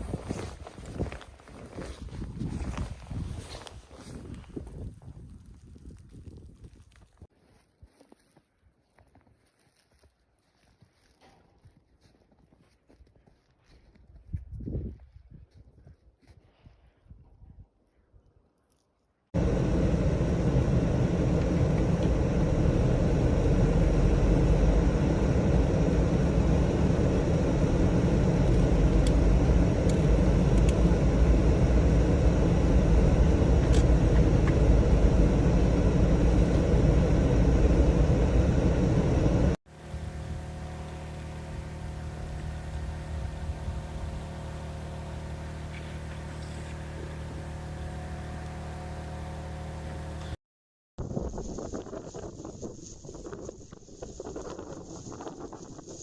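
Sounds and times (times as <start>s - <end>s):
snow-clearing machine engine: 19.4s - 50.4s.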